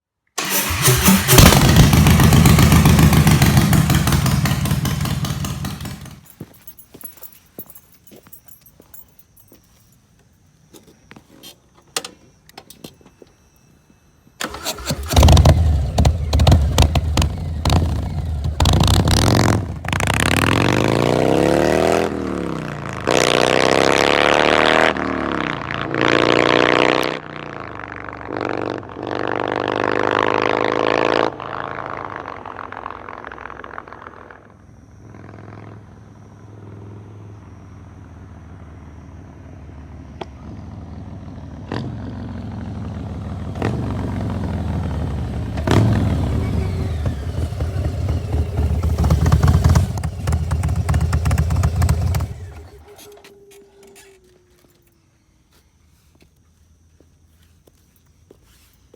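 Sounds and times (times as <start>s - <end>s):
motorcycle engine revving: 0.4s - 6.4s, 14.4s - 54.8s
motorcycle engine idling: 0.4s - 6.6s, 14.4s - 20.6s, 37.9s - 54.7s.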